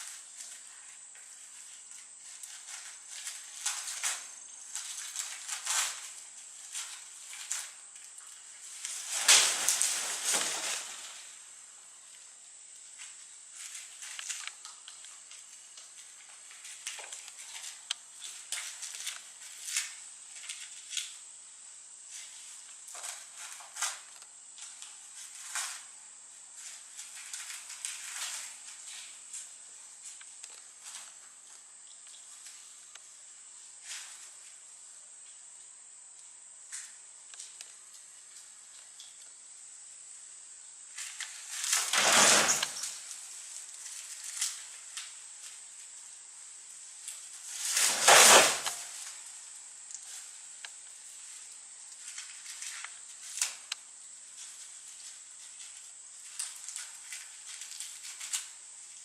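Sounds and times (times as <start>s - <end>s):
leaves rustling and tearing: 0.0s - 11.5s, 12.8s - 21.2s, 22.1s - 31.6s, 40.9s - 46.0s, 46.7s - 59.0s.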